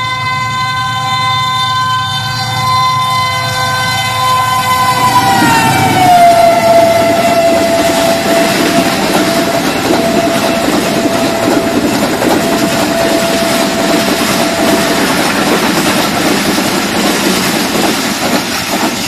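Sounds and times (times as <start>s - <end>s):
train wheels clattering on rails: 4.9s - 19.0s.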